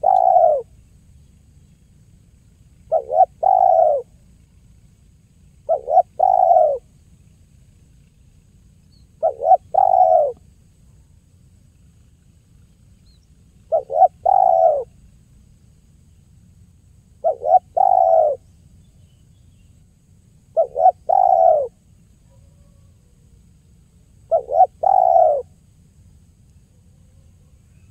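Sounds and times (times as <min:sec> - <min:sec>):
dove cooing: 0:00.0 - 0:00.8, 0:02.8 - 0:04.5, 0:05.6 - 0:06.9, 0:09.2 - 0:10.4, 0:13.6 - 0:15.0, 0:17.2 - 0:18.4, 0:20.5 - 0:23.3, 0:24.2 - 0:25.6.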